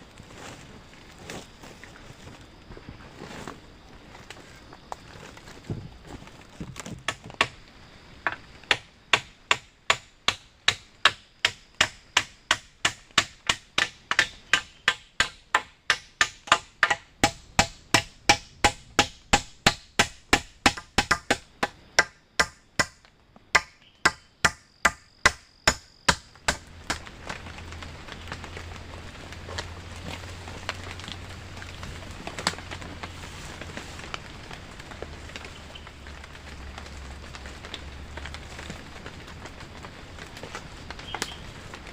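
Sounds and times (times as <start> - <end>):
tool chopping wood: 6.6 - 7.6, 8.3 - 27.1.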